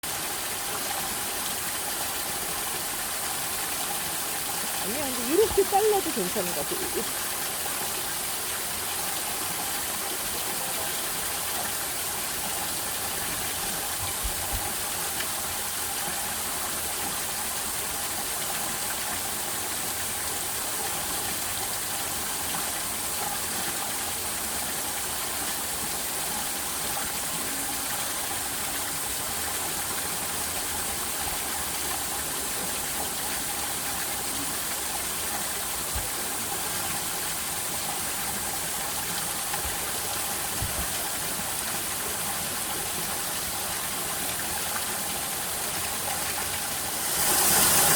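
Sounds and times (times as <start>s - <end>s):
flowing water rushing: 0.0s - 47.9s.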